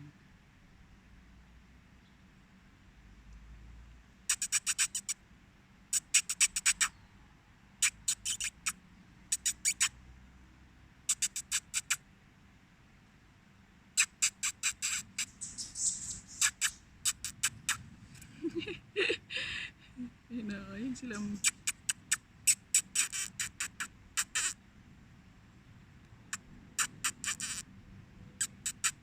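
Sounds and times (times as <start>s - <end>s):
squirrel chattering alarm call: 4.3s - 5.2s, 5.9s - 7.0s, 7.8s - 9.9s, 11.1s - 12.0s, 14.0s - 19.1s, 20.9s - 24.6s, 26.3s - 27.7s, 28.4s - 29.0s.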